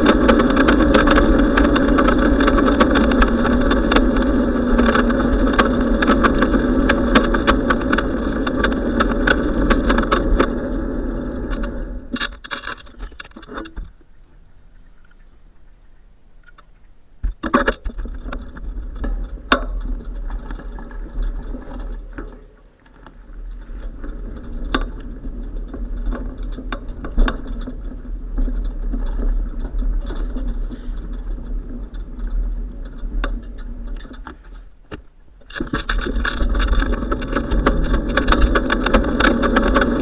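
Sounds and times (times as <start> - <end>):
bicycle rattling: 0.0 - 15.2, 17.4 - 40.0.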